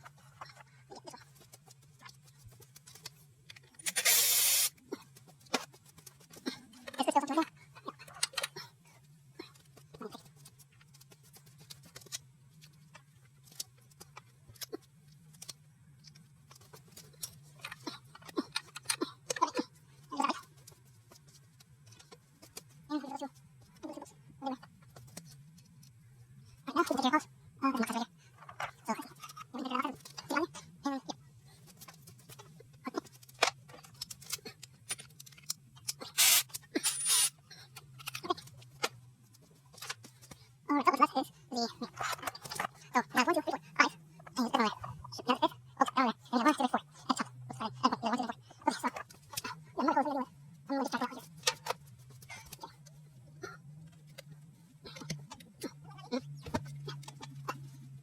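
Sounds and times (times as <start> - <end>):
short rasping bursts: 3.9 - 4.7, 36.2 - 37.3.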